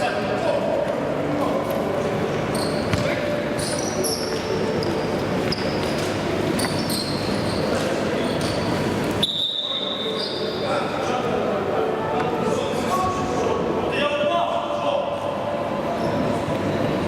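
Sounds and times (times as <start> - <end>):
shoes squeaking on floor: 2.4 - 10.6
ball bouncing on court: 2.9 - 3.2.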